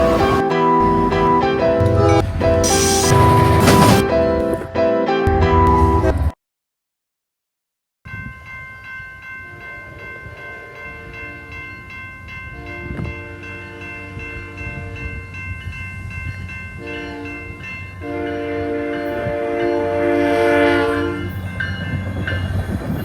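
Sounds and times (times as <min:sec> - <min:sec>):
locomotive horn blasts: 0:00.0 - 0:04.2, 0:16.8 - 0:21.4
crossing bell ringing: 0:00.0 - 0:04.6, 0:08.1 - 0:23.0
low rumble of train: 0:00.0 - 0:04.6, 0:08.1 - 0:23.0.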